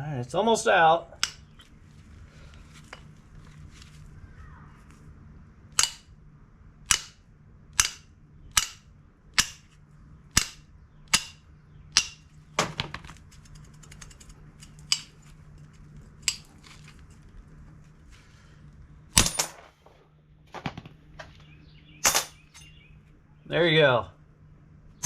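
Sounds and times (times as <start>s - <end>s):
hammer striking steel bolt: 1.2s - 1.5s, 5.7s - 6.1s, 6.9s - 7.2s, 7.8s - 8.8s, 9.4s - 9.6s, 10.4s - 11.4s, 12.0s - 12.2s.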